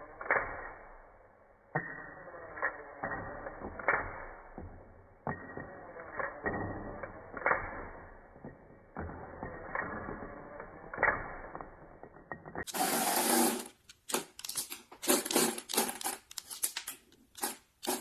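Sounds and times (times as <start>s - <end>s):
plastic parts clicking: 13.6s - 18.0s.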